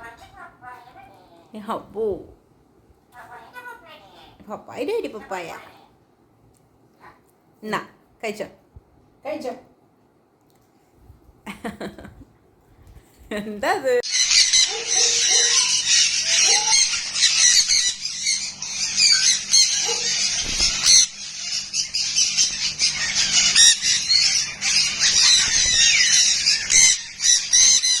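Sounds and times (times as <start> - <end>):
parrot screeching and squawking: 0.0 - 1.5, 14.0 - 28.0
steady low hum: 15.4 - 28.0.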